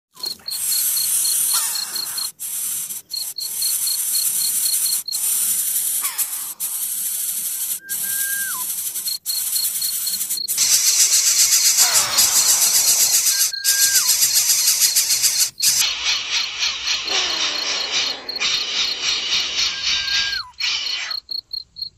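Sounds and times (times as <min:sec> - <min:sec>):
high-pitched insect chorus: 0:00.2 - 0:21.9
downward-gliding whistles: 0:07.5 - 0:08.7, 0:09.3 - 0:15.9, 0:19.6 - 0:20.6.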